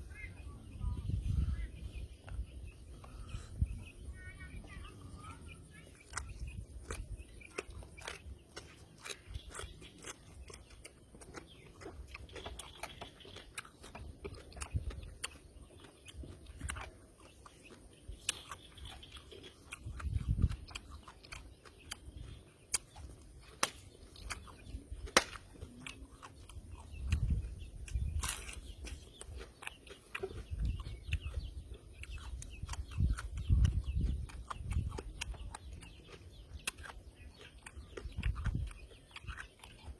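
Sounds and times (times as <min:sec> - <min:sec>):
man chewing crunchy food: 0:05.0 - 0:39.9
wet mouth clicks and smacks: 0:06.0 - 0:39.9.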